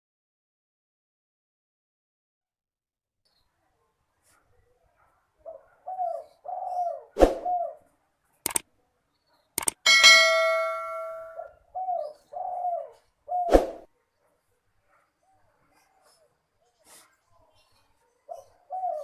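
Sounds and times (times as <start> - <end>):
dove cooing: 5.5 - 7.8, 11.3 - 13.5, 18.3 - 19.0
sharp clicks: 8.4 - 8.7, 9.6 - 9.8
metallic ding ringing: 9.9 - 11.5.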